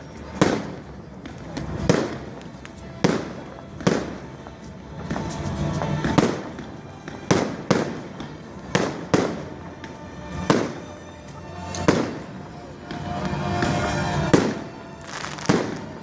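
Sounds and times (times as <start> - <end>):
fireworks bangs: 0.0 - 16.0
fireworks crackling: 0.0 - 16.0.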